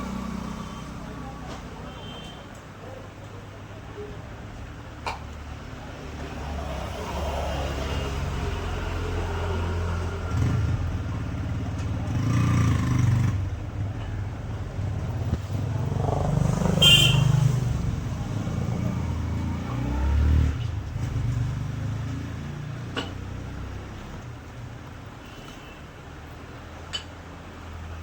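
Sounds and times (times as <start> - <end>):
traffic engines rumbling: 0.0 - 28.0
high-pitched horn toot: 16.8 - 17.4.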